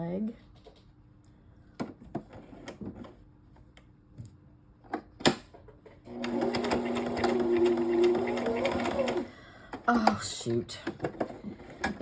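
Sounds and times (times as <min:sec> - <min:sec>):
sewing machine stitching: 0:06.1 - 0:09.3.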